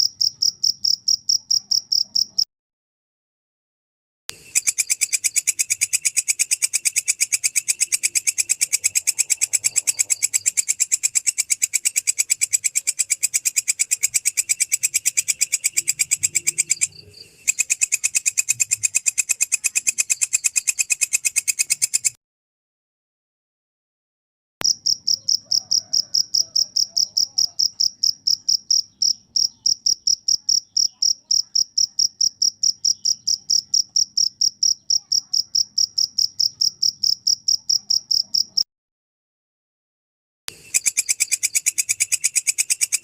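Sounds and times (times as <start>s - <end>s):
insect clicking call: 4.3s - 22.2s, 24.6s - 38.6s, 40.5s - 43.0s.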